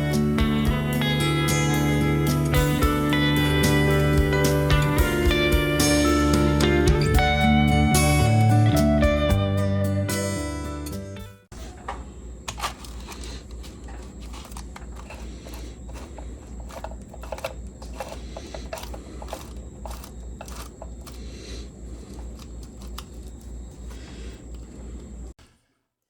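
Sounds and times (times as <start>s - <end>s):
drill press humming: 11.5s - 25.4s
light metal clicks and scrapes: 11.6s - 24.7s.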